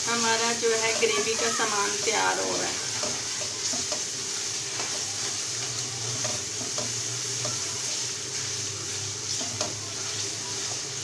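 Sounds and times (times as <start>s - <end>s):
food sizzling in oil: 0.0s - 11.0s
spatula tapping a pan: 1.9s - 5.1s, 5.7s - 8.0s, 9.3s - 10.8s.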